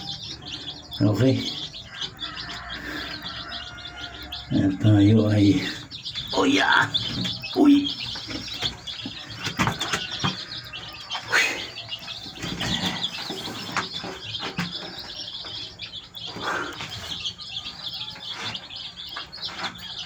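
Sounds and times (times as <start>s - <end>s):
chicks peeping: 0.0s - 20.0s.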